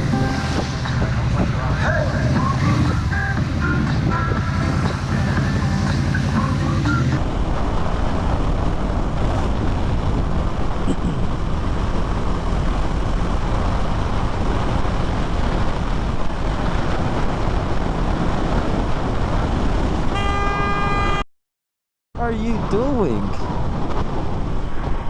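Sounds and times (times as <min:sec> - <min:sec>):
wind and road rush: 0:00.0 - 0:21.3, 0:22.2 - 0:25.0.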